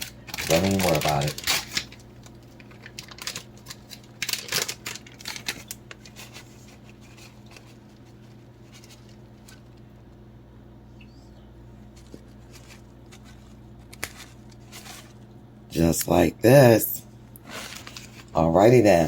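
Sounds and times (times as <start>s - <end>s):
cheese scattered over bread: 0.0s - 10.1s.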